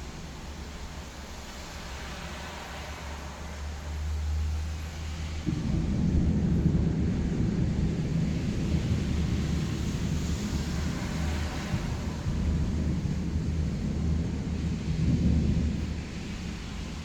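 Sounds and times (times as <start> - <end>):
thunder rumbling: 5.4 - 17.0.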